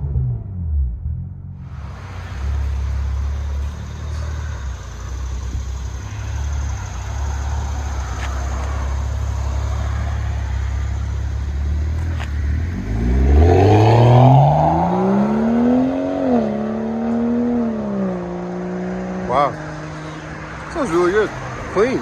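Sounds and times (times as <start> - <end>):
car exhaust drone: 0.0 - 22.0.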